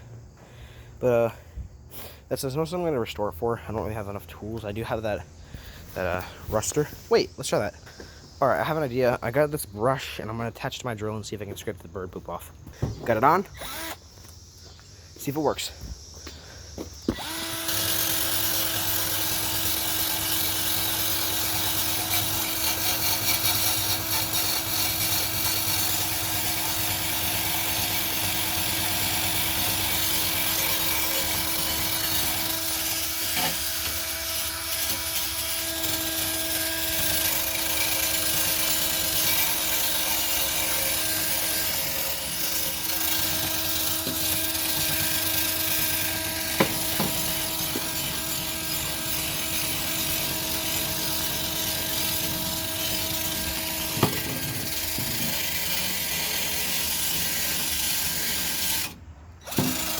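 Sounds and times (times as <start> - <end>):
electric drill motor whine: 13.6 - 14.8, 16.1 - 59.9.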